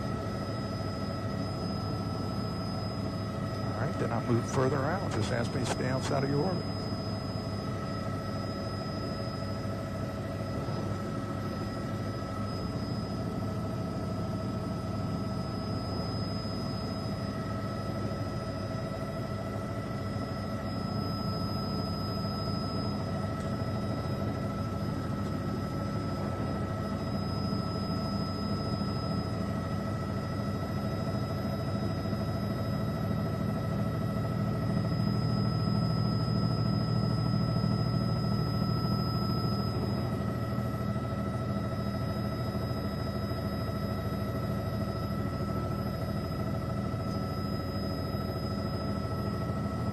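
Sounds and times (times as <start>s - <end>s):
helicopter engine and rotors: 0.0s - 49.9s.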